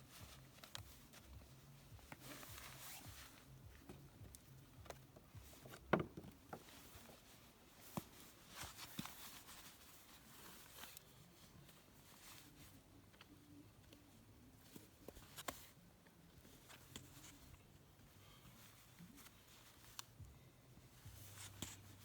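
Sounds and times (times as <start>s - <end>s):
clothes rustling: 0.0s - 22.0s.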